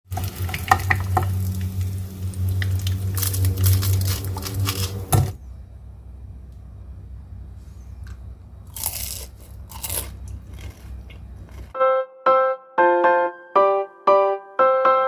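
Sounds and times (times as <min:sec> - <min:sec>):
food frying in hot oil: 0:00.0 - 0:05.2
low steady hum: 0:00.1 - 0:11.8.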